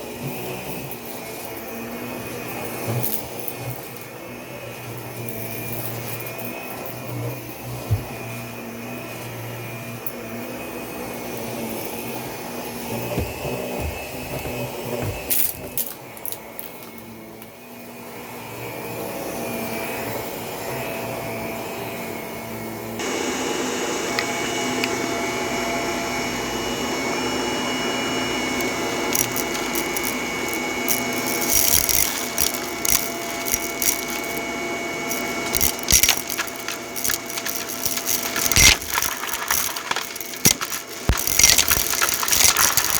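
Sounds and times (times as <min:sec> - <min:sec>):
vacuum cleaner on carpet: 0:00.0 - 0:42.9
sharp clicks and rattles: 0:28.6 - 0:34.4, 0:35.1 - 0:42.9.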